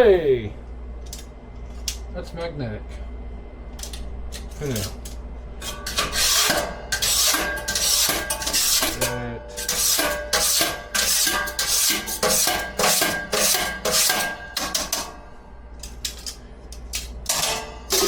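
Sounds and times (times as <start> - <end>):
steady low hum: 0.0 - 18.0
metal scraping in fryer vat: 5.6 - 15.0.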